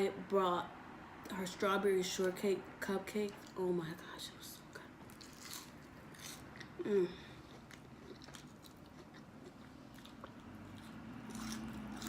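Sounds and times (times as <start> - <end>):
low steady hum: 0.0 - 12.0
person chewing food: 5.0 - 12.0.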